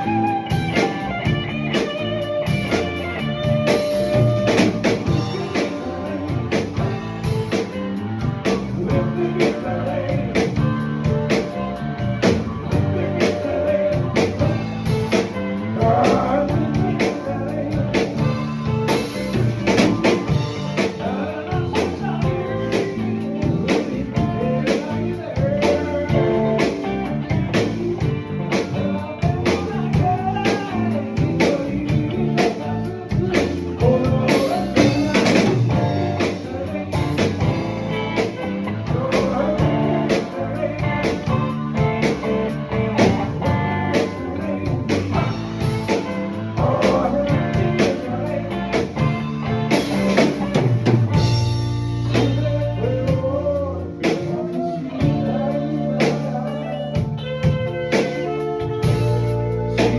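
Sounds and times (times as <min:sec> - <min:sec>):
band playing blues rock: 0:00.0 - 0:59.9.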